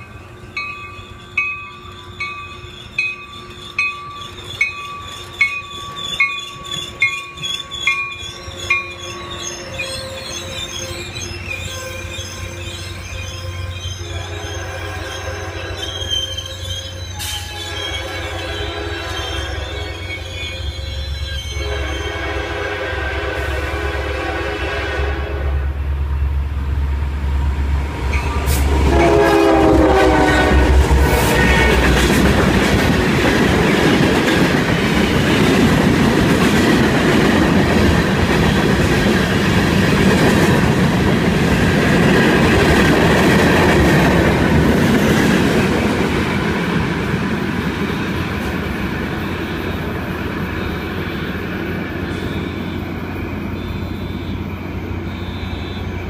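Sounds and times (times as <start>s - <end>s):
train horn chord: 14.0s - 16.0s, 17.2s - 20.1s, 21.5s - 25.8s, 28.1s - 32.1s
train wheels rumbling and clattering: 25.7s - 56.0s.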